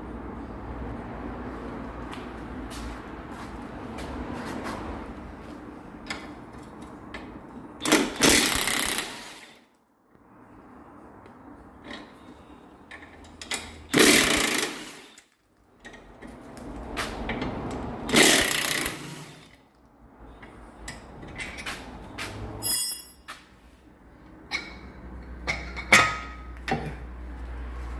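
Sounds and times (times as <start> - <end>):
power tool bursts: 7.8 - 9.6, 13.9 - 15.2, 18.1 - 19.6.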